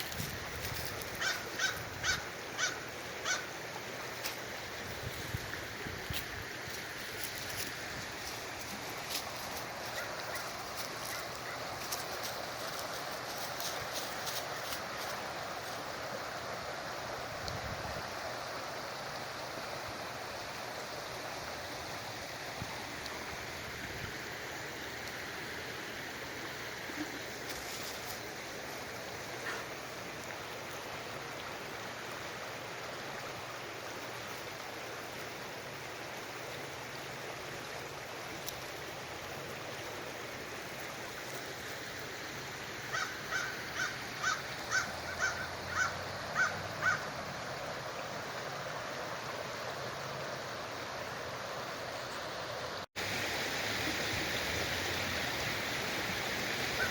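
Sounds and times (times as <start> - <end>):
river water rushing: 0.0 - 56.9
bird harsh crow-like calls: 1.2 - 3.5, 42.9 - 47.1.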